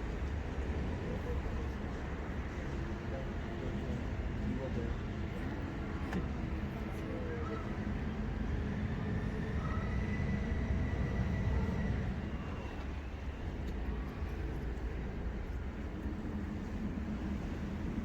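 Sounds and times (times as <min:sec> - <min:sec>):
boat engine rumble: 0:09.9 - 0:18.0.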